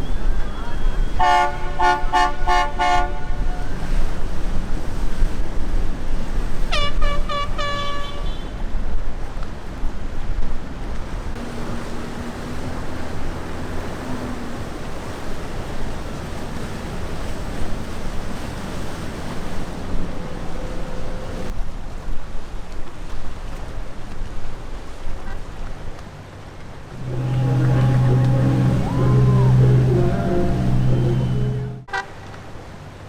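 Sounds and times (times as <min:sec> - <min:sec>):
water noise: 0:00.0 - 0:33.0
wind: 0:00.0 - 0:33.0
boat horn toots: 0:00.1 - 0:04.2, 0:06.6 - 0:08.6, 0:11.4 - 0:21.5, 0:26.9 - 0:32.5.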